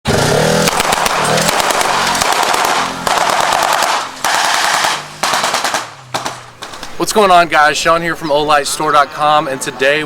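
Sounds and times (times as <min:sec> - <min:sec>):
rapid automatic gunfire: 0:00.6 - 0:06.8.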